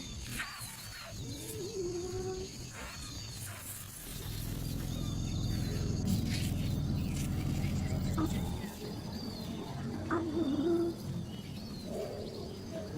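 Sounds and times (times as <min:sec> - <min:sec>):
low rumble: 0:04.1 - 0:08.8.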